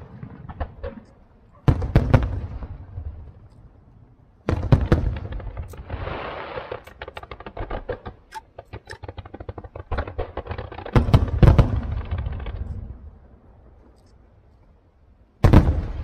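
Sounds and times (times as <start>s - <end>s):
fireworks bangs: 0.0s - 3.4s, 4.4s - 13.2s, 15.4s - 16.0s
fireworks crackling pops: 4.4s - 14.6s
fireworks hiss: 5.7s - 7.2s.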